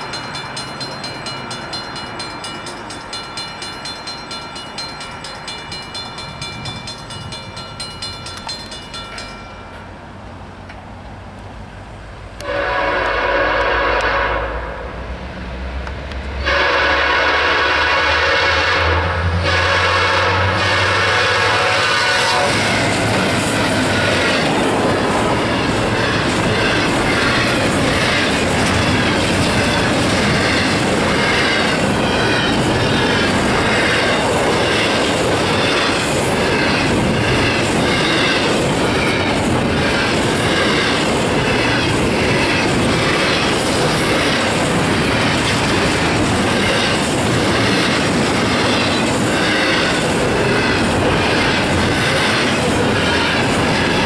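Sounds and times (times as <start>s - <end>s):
wheels clicking over rail joints: 0.0s - 9.9s, 21.5s - 54.0s
diesel locomotives passing: 0.0s - 54.0s
freight cars rumbling and rattling: 19.0s - 54.0s.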